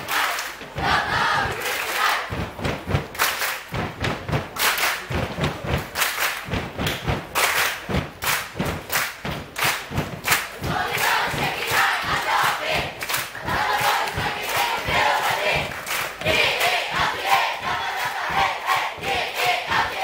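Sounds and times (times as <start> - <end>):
group thumping and clapping: 0.0 - 20.0.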